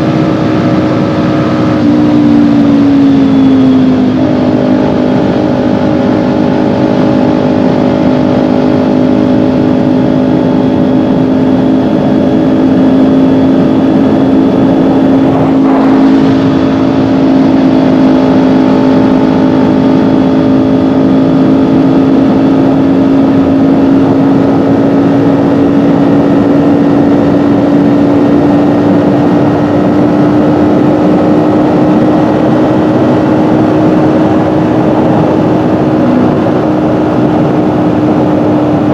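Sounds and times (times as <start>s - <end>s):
motorcycle engine cruising: 0.0s - 38.9s
wind rushing: 12.3s - 26.4s.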